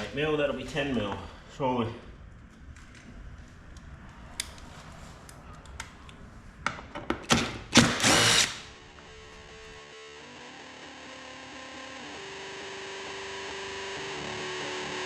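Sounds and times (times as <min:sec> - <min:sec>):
cordless drill bursts: 0:07.7 - 0:08.7
electric guitar music: 0:09.0 - 0:15.0.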